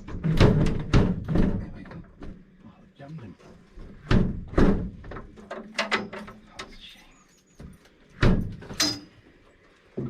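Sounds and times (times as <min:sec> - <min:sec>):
door knocks and metallic rattles: 0:00.0 - 0:02.4, 0:03.8 - 0:06.4, 0:08.2 - 0:09.0.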